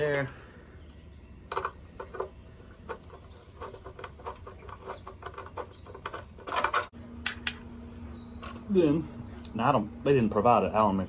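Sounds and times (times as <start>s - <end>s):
parts and hand tool rattling: 1.5s - 7.6s, 8.4s - 9.0s, 10.1s - 11.0s.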